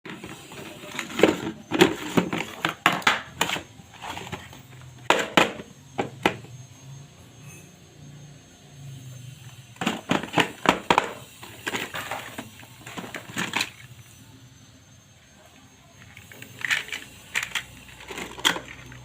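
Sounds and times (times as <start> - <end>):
toy cars clattering: 0.1 - 6.5, 9.7 - 14.2, 16.0 - 19.0.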